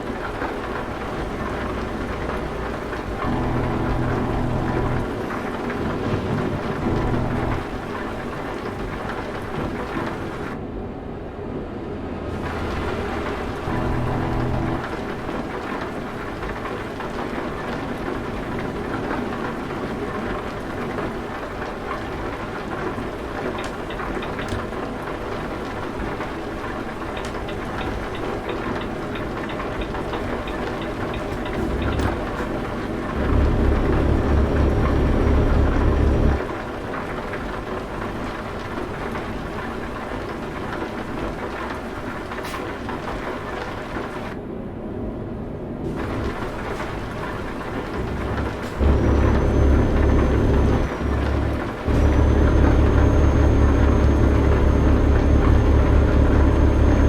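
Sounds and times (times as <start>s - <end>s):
truck engine droning: 0.0s - 17.7s, 29.9s - 37.3s, 45.9s - 57.0s
low pulsing rumble: 1.5s - 7.8s, 12.4s - 15.0s, 33.2s - 36.4s, 48.0s - 57.0s.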